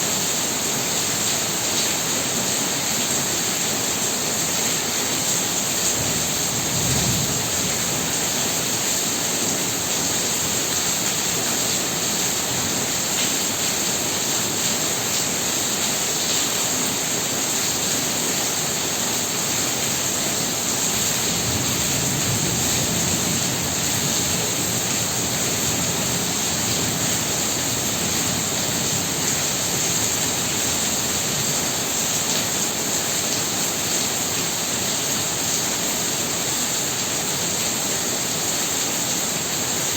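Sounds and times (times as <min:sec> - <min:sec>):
heavy rain pouring: 0:00.0 - 0:39.9
strong wind gusts: 0:05.9 - 0:08.2.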